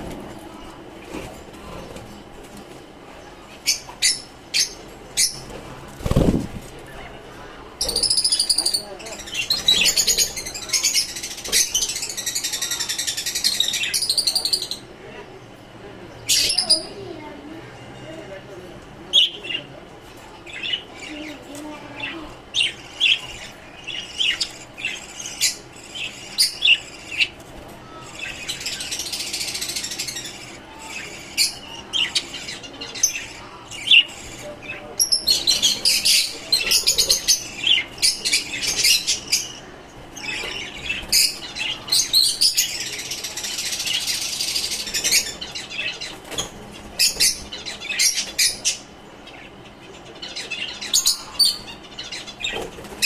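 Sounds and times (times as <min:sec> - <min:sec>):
caged birds chirping and chattering: 0:00.0 - 0:53.0.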